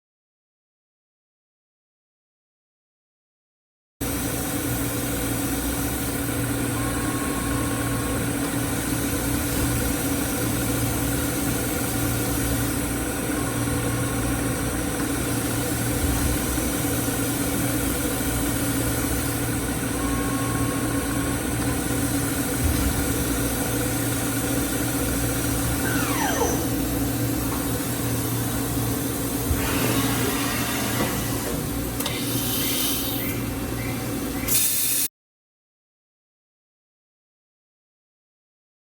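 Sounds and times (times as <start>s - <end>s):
industrial machinery humming: 4.1s - 35.0s
falling squeal: 25.8s - 26.8s
hiss: 32.0s - 33.3s, 34.5s - 35.1s.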